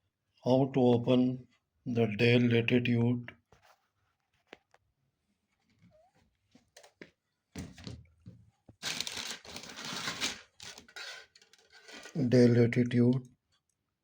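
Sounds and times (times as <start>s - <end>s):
rustling and scraping: 3.5s - 4.8s, 5.4s - 12.2s.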